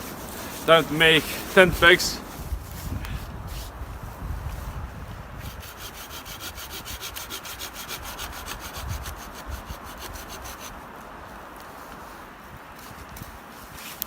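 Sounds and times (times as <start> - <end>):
low wind rumble: 0.0 - 13.8
hand saw cutting wood: 5.4 - 10.8.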